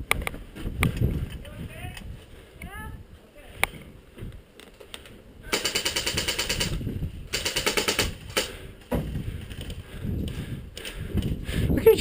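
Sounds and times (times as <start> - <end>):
airsoft rifle firing bursts: 5.5 - 8.6.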